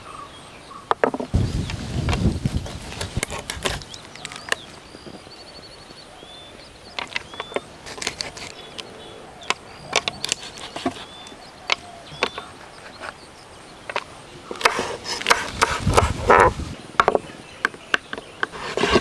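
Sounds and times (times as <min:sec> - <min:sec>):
faint bird chirps: 0:02.5 - 0:18.7
sharp knocks and snaps: 0:07.0 - 0:08.9, 0:09.5 - 0:13.2, 0:13.9 - 0:19.0.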